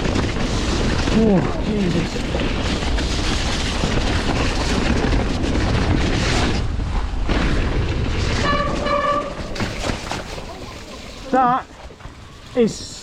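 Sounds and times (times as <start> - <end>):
wind rumble on microphone: 0.0 - 10.4
tyres churning through mud: 0.0 - 13.0.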